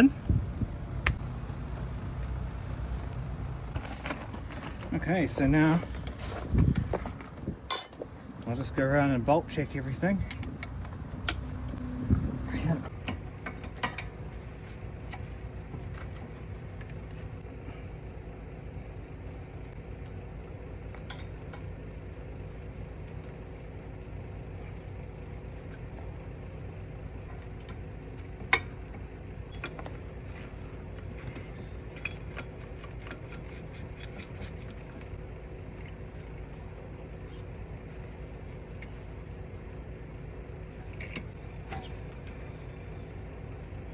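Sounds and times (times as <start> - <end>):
steady low hum: 0.0 - 43.9
hand tools clinking on metal: 7.7 - 8.7, 29.5 - 36.7, 40.8 - 42.4.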